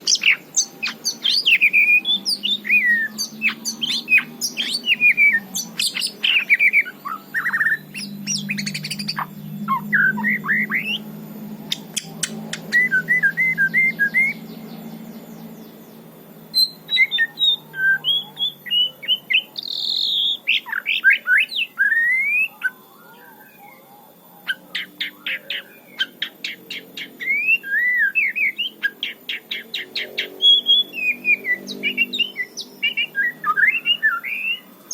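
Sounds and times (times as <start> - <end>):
bird ticking notes: 0.0 - 15.2
bird whistled song: 0.0 - 34.9
low steady hum: 0.0 - 34.9.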